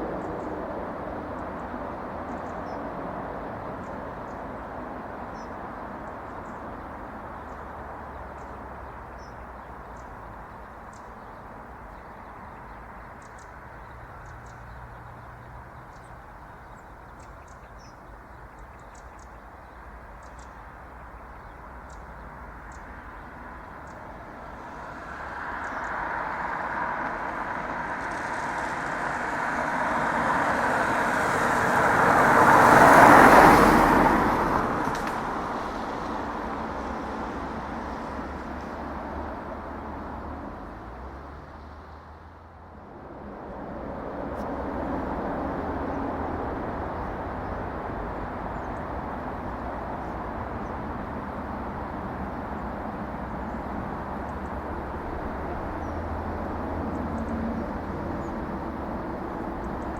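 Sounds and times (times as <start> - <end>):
low road noise: 0.0 - 59.9
car passing by: 19.9 - 59.9.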